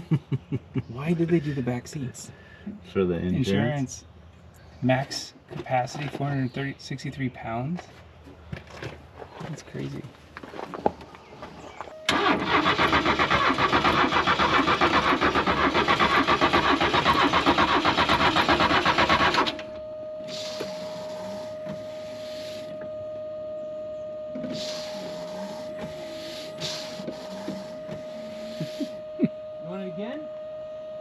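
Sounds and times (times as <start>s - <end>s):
car engine starter cranking: 12.1s - 22.9s
steady high tone: 19.5s - 31.0s.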